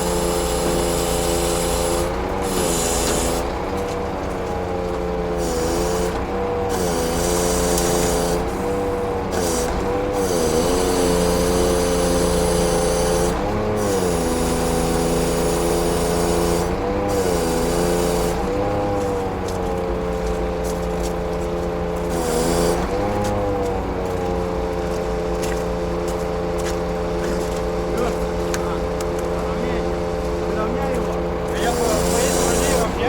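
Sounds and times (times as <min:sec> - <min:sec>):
diesel truck engine running: 0:00.0 - 0:33.0.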